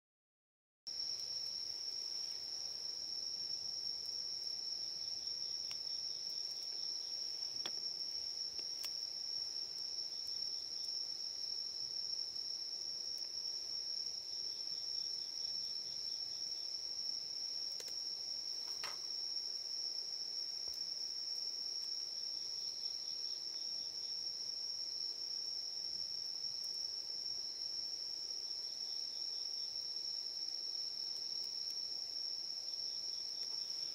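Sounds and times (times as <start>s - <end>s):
soft pulsing insect trill: 0.9s - 33.9s
faint sharp clicks: 17.8s - 18.0s.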